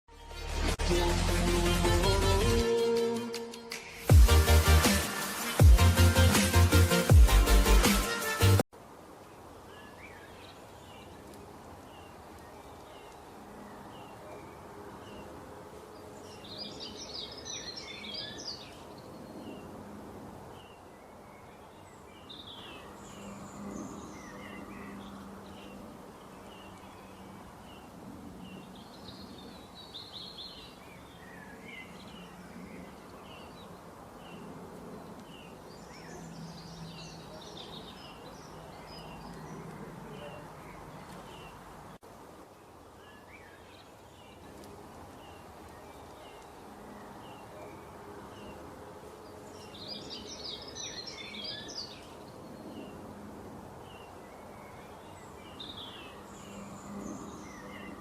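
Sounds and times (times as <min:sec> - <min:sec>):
small birds chirping: 0:20.5 - 0:48.6.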